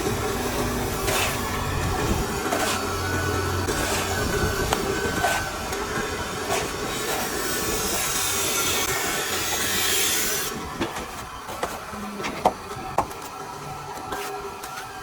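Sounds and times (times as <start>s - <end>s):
trowel scraping wet plaster: 0.8s - 10.6s.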